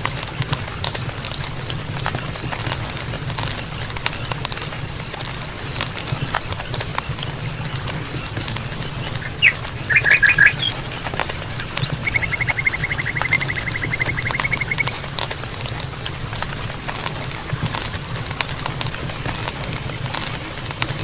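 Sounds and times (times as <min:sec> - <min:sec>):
campfire crackling and popping: 0:00.0 - 0:21.0
small animal chirps: 0:09.0 - 0:10.8, 0:11.6 - 0:15.8, 0:16.4 - 0:19.0.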